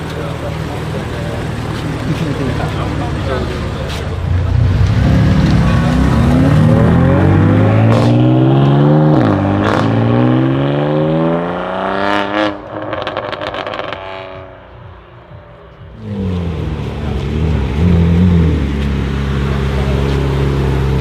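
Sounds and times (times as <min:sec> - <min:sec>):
sports car engine accelerating: 0:00.0 - 0:21.0.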